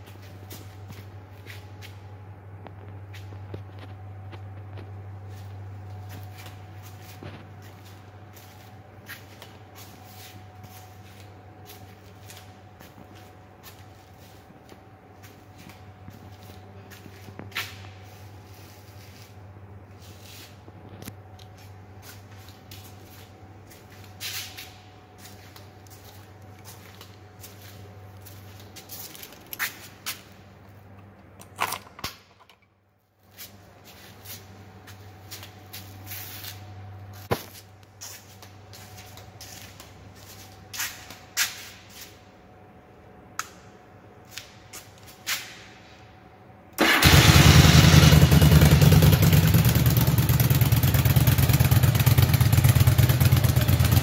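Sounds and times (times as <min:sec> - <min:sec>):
low steady hum: 0:00.0 - 0:54.0
motorcycle engine starting and running: 0:46.8 - 0:54.0.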